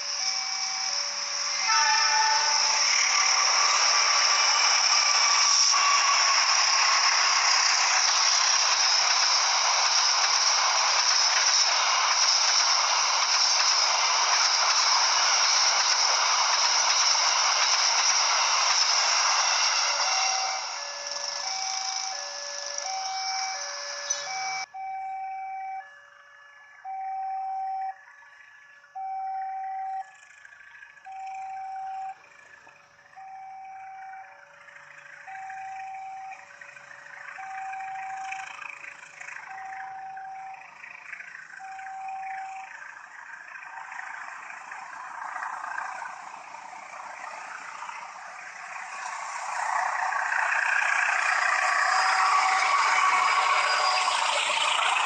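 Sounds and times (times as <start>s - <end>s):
approaching train: 0.0s - 55.0s
level crossing alarm two tones: 20.0s - 26.0s, 26.8s - 28.0s.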